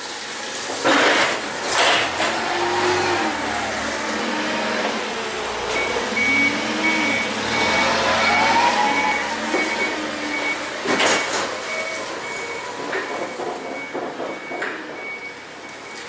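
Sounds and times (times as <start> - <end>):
vehicle reversing alarm beeping: 5.7 - 16.0.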